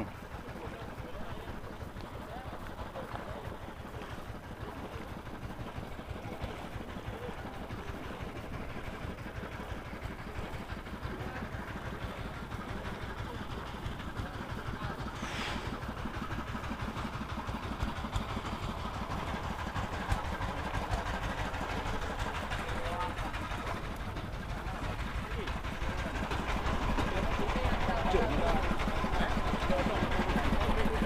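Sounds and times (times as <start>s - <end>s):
small engine running: 0.0s - 31.0s
brief hiss: 15.1s - 15.8s.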